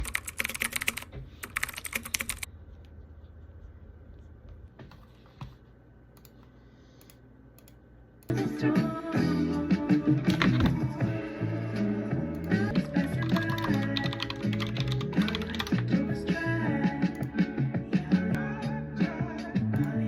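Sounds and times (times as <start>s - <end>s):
keyboard typing: 0.0s - 2.5s, 10.3s - 10.8s, 12.4s - 15.9s.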